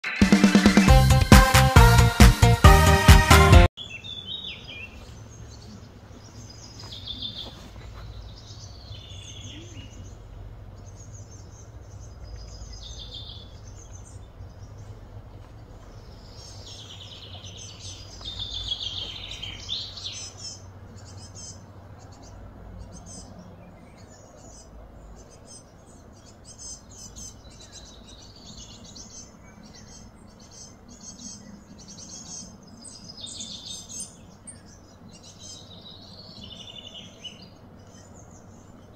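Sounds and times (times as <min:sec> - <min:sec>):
birds chirping and singing: 0:03.8 - 0:38.9
low outdoor hum: 0:03.8 - 0:38.9.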